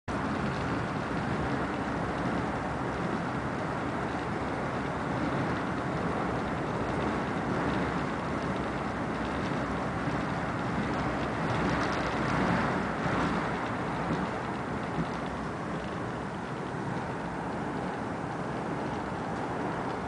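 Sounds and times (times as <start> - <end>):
passenger train rumbling: 0.1 - 20.0.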